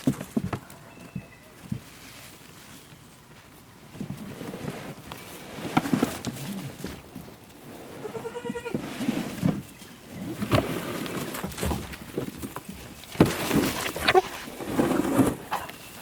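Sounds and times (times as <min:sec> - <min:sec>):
rustling: 0:00.0 - 0:16.0
farm animal call: 0:07.9 - 0:09.1.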